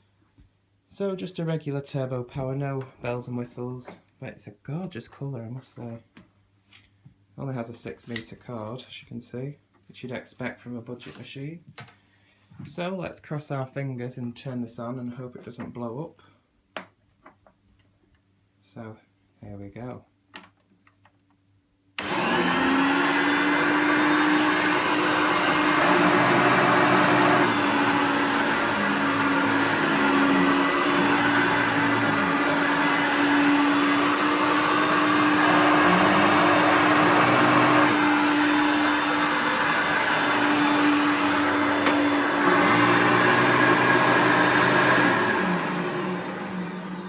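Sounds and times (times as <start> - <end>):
vacuum cleaner motor whine: 22.0 - 47.0.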